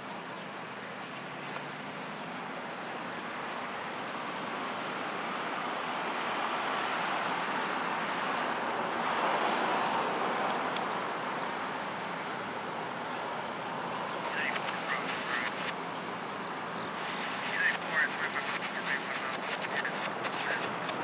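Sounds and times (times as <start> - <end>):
small birds chirping: 10.4 - 21.0.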